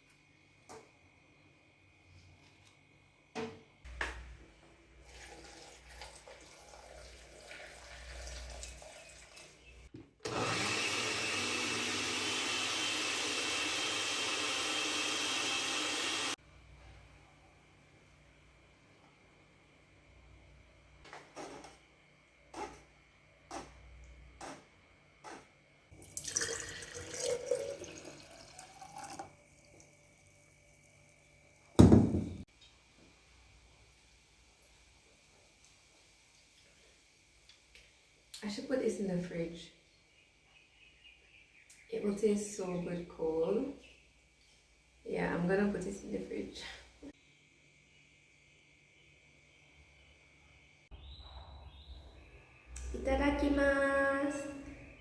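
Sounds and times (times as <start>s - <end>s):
tap water running: 5.0s - 16.4s, 25.9s - 32.2s
loud short thump: 31.8s - 32.4s.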